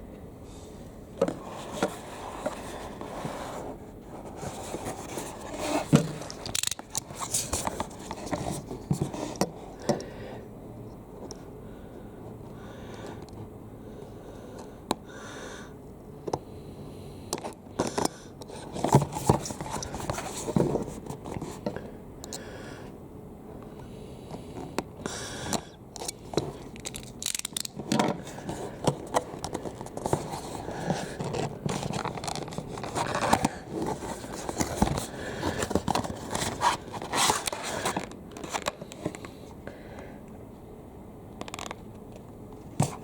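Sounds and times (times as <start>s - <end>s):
cardboard scraping: 1.2s - 6.4s, 18.6s - 21.6s, 28.2s - 38.7s.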